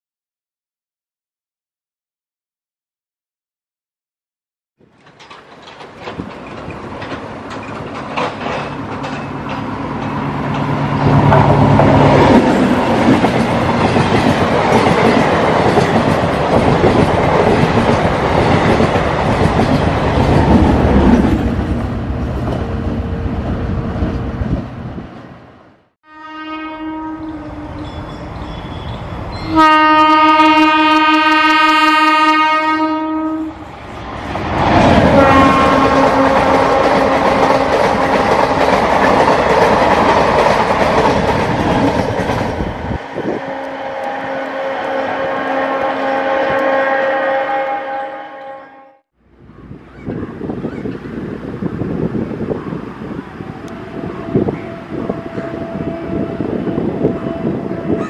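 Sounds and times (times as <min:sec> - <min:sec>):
another train running: 0:04.8 - 0:58.0
train passing: 0:04.8 - 0:58.0
train horn blasts: 0:26.0 - 0:28.7, 0:29.4 - 0:33.6, 0:35.0 - 0:38.4, 0:43.1 - 0:49.1, 0:53.6 - 0:58.0.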